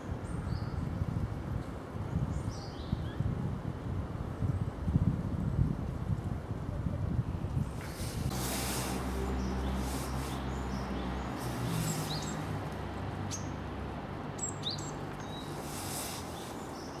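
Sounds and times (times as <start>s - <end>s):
high thin bird chirps: 7.8s - 12.6s, 14.4s - 17.0s.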